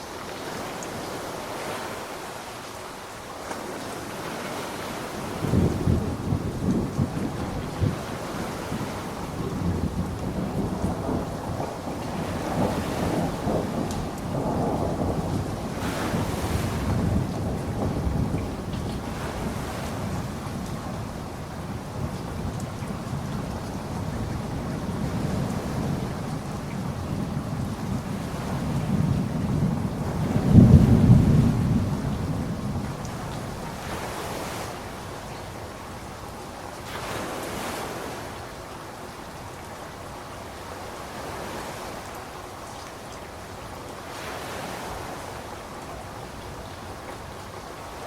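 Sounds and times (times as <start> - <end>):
steady rain falling: 0.0 - 48.0
thunder rumble: 5.4 - 35.0
faint raindrop taps: 22.2 - 23.7.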